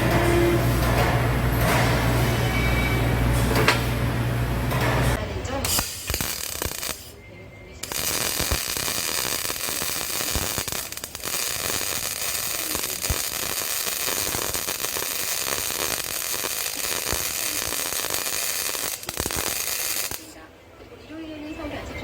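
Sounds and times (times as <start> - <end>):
welding arc crackling: 4.0 - 7.2, 7.8 - 20.4.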